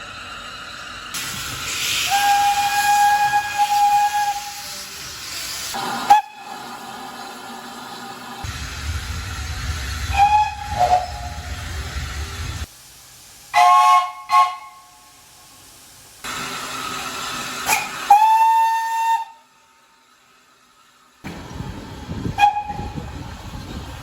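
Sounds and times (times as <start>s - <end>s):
steam locomotive whistle blasts: 1.9s - 4.9s, 5.7s - 6.6s, 10.1s - 11.4s, 13.5s - 15.2s, 17.6s - 19.7s, 22.3s - 23.1s
low rumble: 8.4s - 12.7s.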